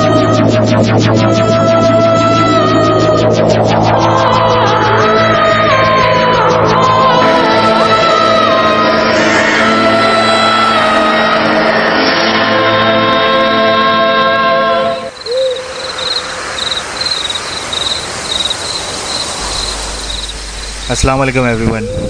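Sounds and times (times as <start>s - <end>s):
owl hoot: 15.1s - 21.0s
crickets chirping: 15.1s - 21.2s.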